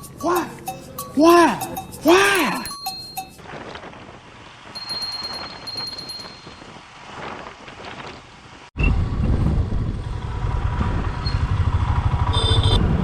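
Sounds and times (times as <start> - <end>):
motorcycle rumble: 2.8 - 13.0
wind buffeting microphone: 2.9 - 13.0.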